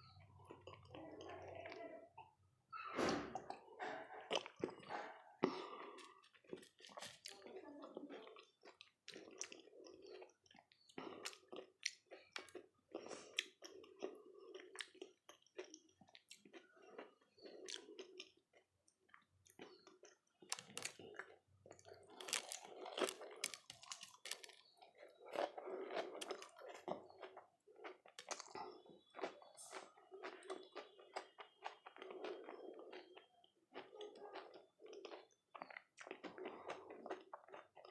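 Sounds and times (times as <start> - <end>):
wet squelchy chewing: 3.4 - 37.9
crisp shells crunching: 20.4 - 21.1, 22.0 - 24.7.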